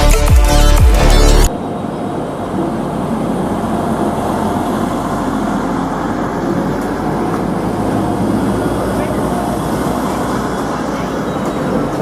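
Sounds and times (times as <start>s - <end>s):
train rumbling on rails: 1.5s - 12.0s.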